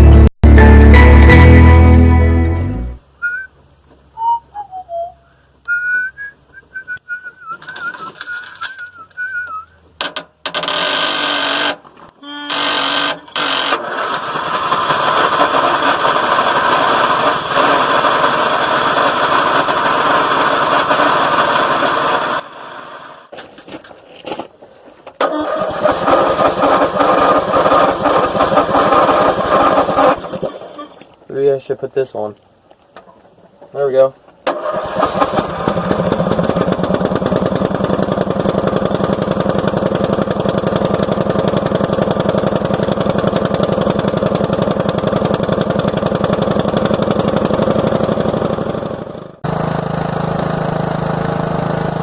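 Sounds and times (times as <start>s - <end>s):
wavering whistling: 3.2s - 9.8s
lawn tractor engine running: 7.5s - 23.2s, 25.2s - 31.4s, 32.7s - 52.0s.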